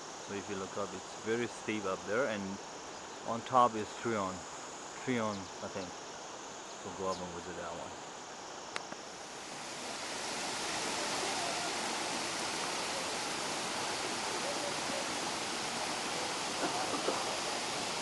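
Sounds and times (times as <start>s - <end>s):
waterfall rushing: 9.2s - 18.0s.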